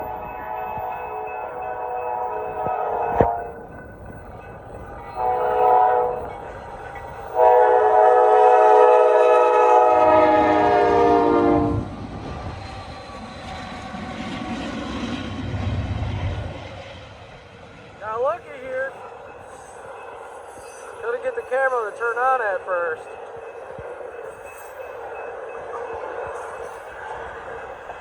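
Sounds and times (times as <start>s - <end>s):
train rumbling by: 0.0s - 28.0s
locomotive air horn blasts: 1.7s - 3.5s, 5.2s - 6.2s, 7.4s - 11.8s.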